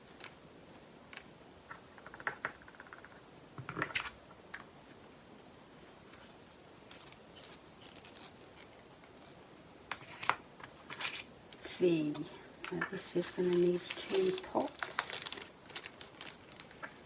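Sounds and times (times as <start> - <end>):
small bags rustling: 4.8 - 17.0
small resin beads rattling: 6.7 - 9.6.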